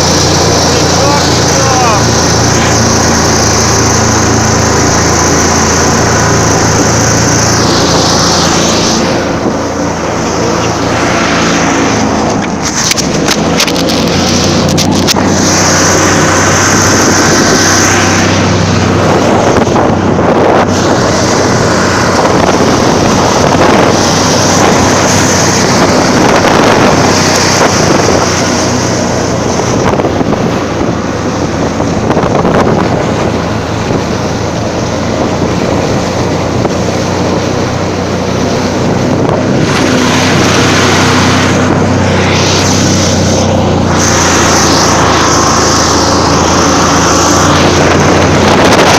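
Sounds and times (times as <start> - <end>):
snowmobile engine running hard: 0.0 - 48.9
wind buffeting microphone: 0.0 - 48.9.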